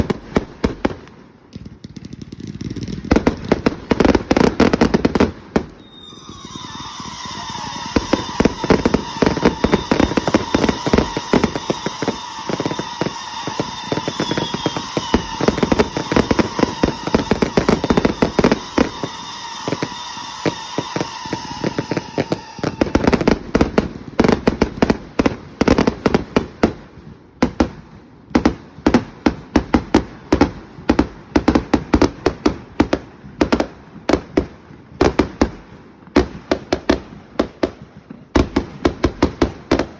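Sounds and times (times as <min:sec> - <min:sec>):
fireworks cracking and popping: 0:00.0 - 0:39.9
shrill firework whistle: 0:04.0 - 0:26.2.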